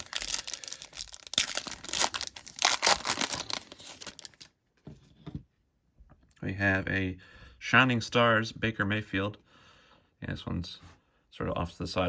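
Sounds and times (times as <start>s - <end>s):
plastic wrapper tearing and crinkling: 0.0s - 4.5s.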